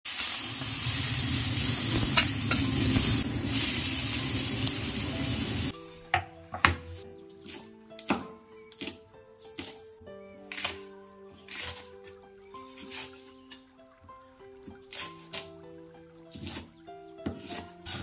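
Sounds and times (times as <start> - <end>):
vegetables sizzling in oil: 0.1 - 8.2
background music: 1.0 - 18.0.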